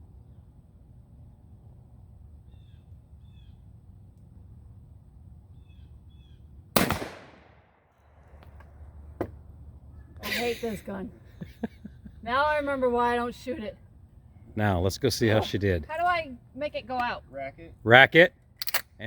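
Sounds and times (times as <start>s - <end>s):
bird calling: 2.4s - 3.7s, 5.5s - 6.5s
shotgun blast: 6.8s - 7.8s.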